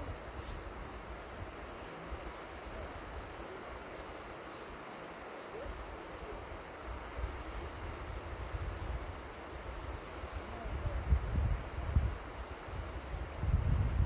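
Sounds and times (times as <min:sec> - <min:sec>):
river water flowing: 0:00.0 - 0:10.8
wind buffeting microphone: 0:09.9 - 0:14.0.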